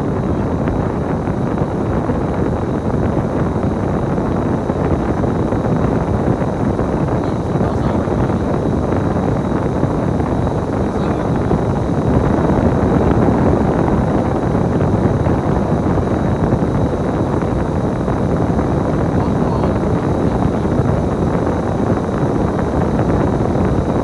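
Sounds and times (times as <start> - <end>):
bus engine and road rumble: 18.1 - 23.6.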